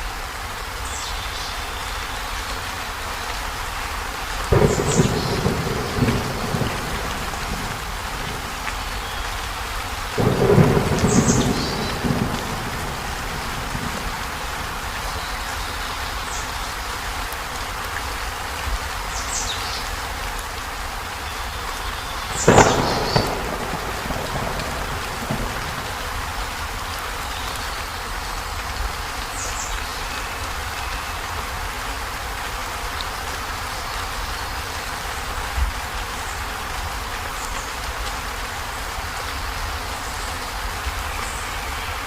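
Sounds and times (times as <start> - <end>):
heavy rain on a metal roof: 0.0 - 42.0
thunder crack: 4.5 - 9.0, 10.2 - 15.0, 22.4 - 26.4.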